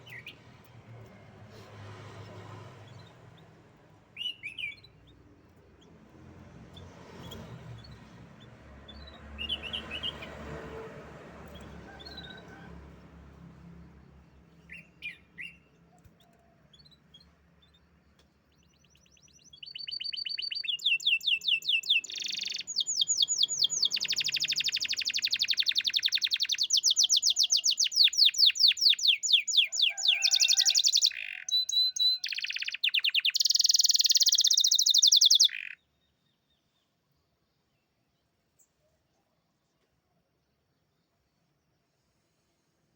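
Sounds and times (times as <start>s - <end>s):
canary singing trills: 4.1s - 5.9s, 6.7s - 10.4s, 14.6s - 36.2s.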